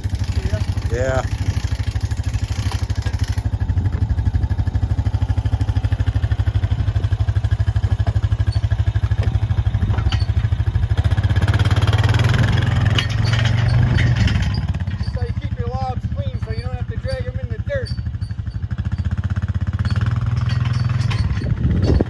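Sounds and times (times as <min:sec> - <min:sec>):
engine throbbing at low speed: 0:00.0 - 0:22.0
light clanks: 0:05.7 - 0:11.0, 0:12.2 - 0:19.0, 0:19.8 - 0:22.0.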